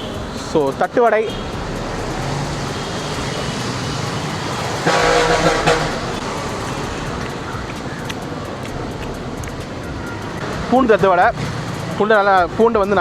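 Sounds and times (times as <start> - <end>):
vehicle horn honking: 0.0 - 0.2, 1.2 - 1.6, 4.7 - 6.4
road traffic noise: 0.0 - 13.0.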